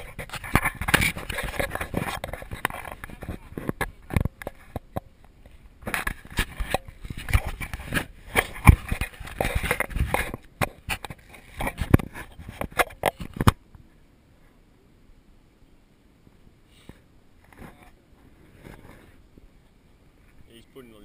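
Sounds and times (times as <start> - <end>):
crash thuds and scraping on dirt: 5.8 - 13.6.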